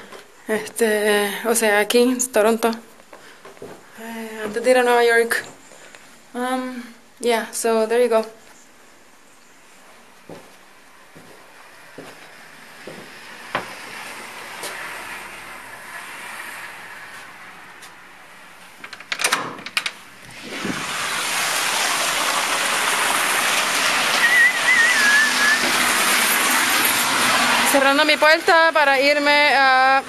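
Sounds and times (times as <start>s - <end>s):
warbling whistle: 24.2s - 26.5s.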